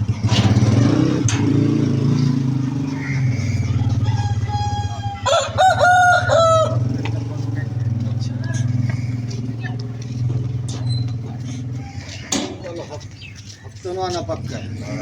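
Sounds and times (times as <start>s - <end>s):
engine droning: 0.0s - 15.0s
rooster crowing: 2.8s - 7.2s, 11.4s - 12.9s, 14.8s - 15.0s.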